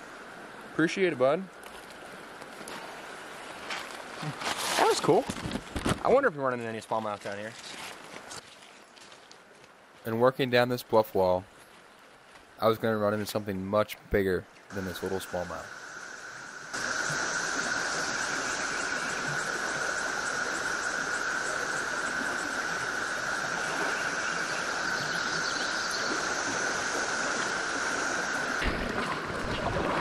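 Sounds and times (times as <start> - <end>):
cicadas chorus: 14.7 - 30.0.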